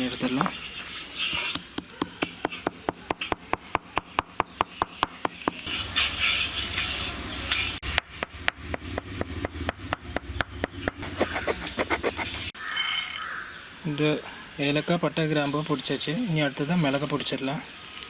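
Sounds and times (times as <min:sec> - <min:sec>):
frying hiss: 0:00.0 - 0:03.2, 0:05.3 - 0:07.8, 0:11.0 - 0:18.0.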